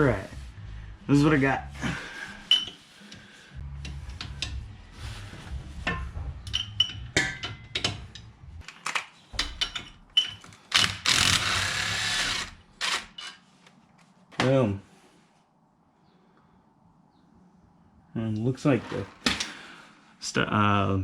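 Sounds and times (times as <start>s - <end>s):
metal clanking: 2.4s - 4.8s, 5.7s - 11.4s
ratchet wrench clicking: 3.7s - 4.6s, 10.8s - 13.2s
loud continuous rasp: 10.8s - 13.4s.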